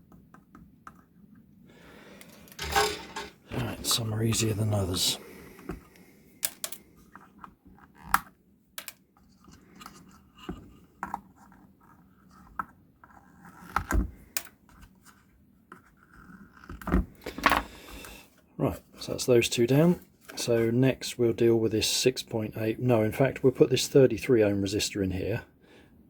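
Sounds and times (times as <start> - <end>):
hand tools clicking and scraping: 2.2 - 3.6.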